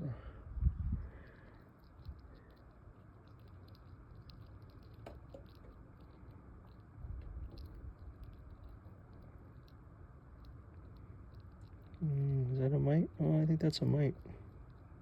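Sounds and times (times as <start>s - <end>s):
low rumble of handling: 0.0s - 15.0s
wax comb clicking and squishing: 1.2s - 9.8s.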